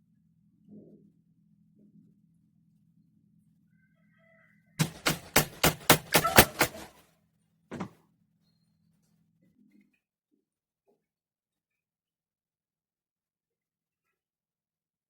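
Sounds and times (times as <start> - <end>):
sharp knocks: 4.8 - 6.9, 7.7 - 7.9.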